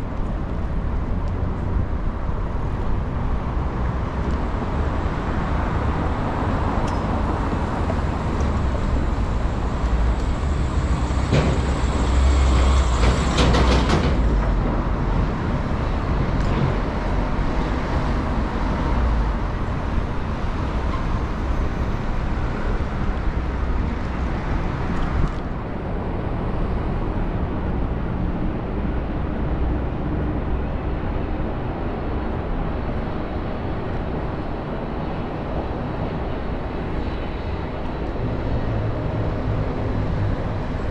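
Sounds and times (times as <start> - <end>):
road traffic: 0.0 - 40.9.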